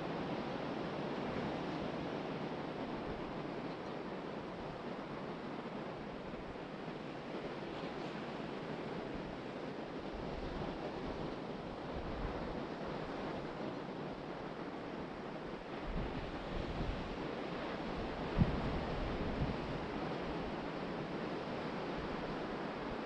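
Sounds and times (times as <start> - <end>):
ocean surf washing onto beach: 0.0 - 23.0
wind buffeting microphone: 8.4 - 23.0.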